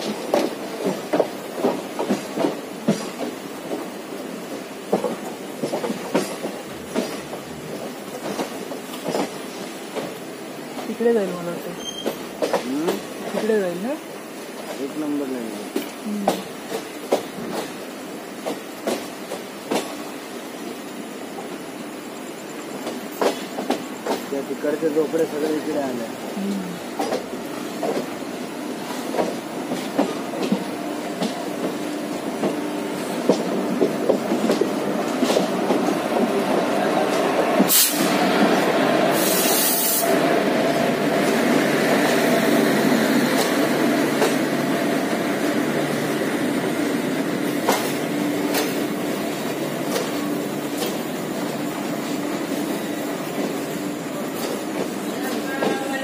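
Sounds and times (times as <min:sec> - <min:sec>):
train wheels rumbling on rails: 0:00.0 - 0:56.0
wheels clicking over rail joints: 0:04.5 - 0:13.9, 0:26.9 - 0:28.2, 0:28.8 - 0:37.8, 0:43.2 - 0:56.0
loud hisses: 0:36.6 - 0:49.8.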